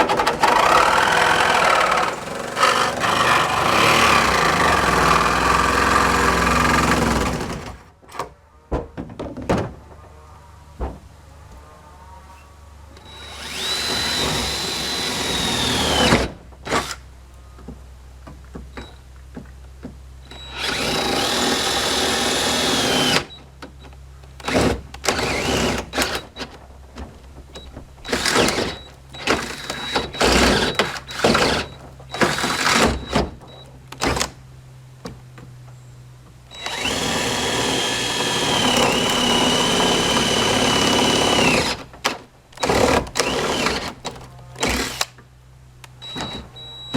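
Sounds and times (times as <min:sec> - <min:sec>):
power tool cutting sheet metal: 0:00.0 - 0:07.8, 0:13.1 - 0:16.9, 0:36.6 - 0:41.8.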